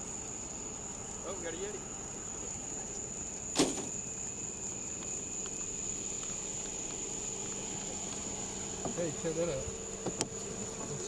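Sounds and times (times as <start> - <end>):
insects chorus: 0.0 - 11.0
sharp knock: 3.6 - 3.9.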